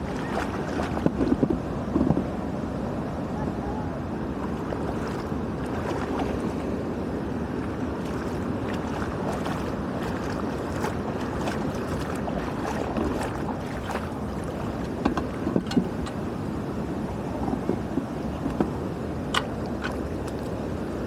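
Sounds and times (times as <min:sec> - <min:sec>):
short splashes and crackles: 0:00.0 - 0:01.5, 0:04.4 - 0:06.8, 0:07.5 - 0:16.2
water rushing through drain outlet: 0:07.6 - 0:16.2.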